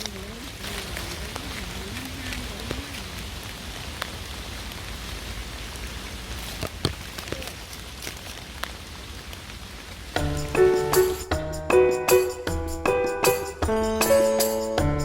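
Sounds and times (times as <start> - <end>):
close raindrops landing: 0.0 - 12.3
steady rain falling: 0.0 - 15.0
instrumental music: 10.2 - 15.0.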